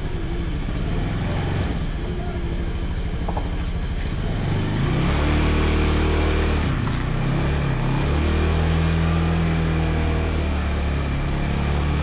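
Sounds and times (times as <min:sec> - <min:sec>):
scooter engine running: 0:00.0 - 0:09.2
road and wind noise: 0:00.0 - 0:12.0.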